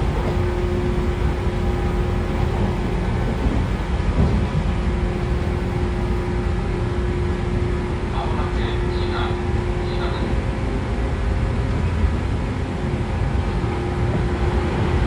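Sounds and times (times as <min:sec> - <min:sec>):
constant motor hum: 0:00.0 - 0:10.2
train wheels rumbling on rail: 0:00.0 - 0:15.0.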